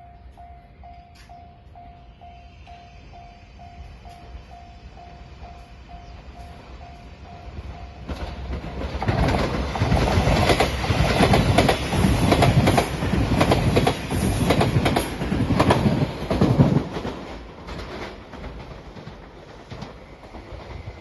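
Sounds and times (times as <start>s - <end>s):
train wheels clacking over rail joints: 8.0s - 21.0s.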